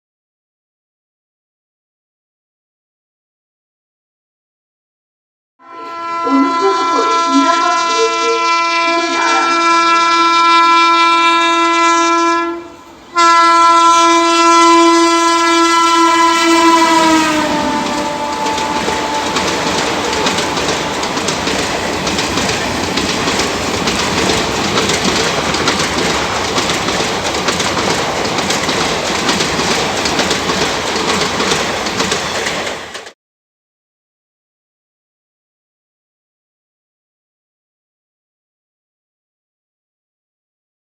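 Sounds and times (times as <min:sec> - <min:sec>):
train horn blasts: 0:05.6 - 0:22.2
train wheels clattering: 0:15.1 - 0:33.2.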